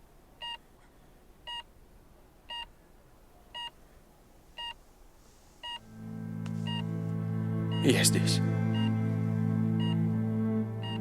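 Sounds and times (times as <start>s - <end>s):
patient monitor beeping: 5.6s - 5.8s, 7.6s - 9.0s, 9.8s - 10.0s
soft background music: 5.6s - 11.0s.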